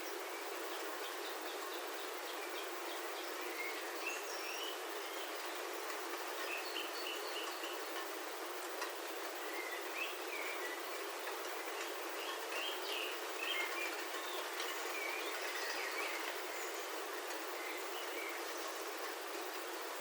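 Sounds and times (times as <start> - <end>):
birds chirping: 0.0 - 20.0
rain falling on a roof: 4.7 - 20.0.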